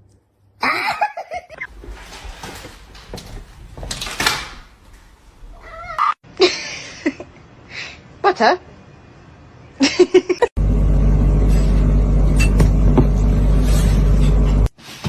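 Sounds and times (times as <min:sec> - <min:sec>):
cat meowing: 0:05.5 - 0:06.2.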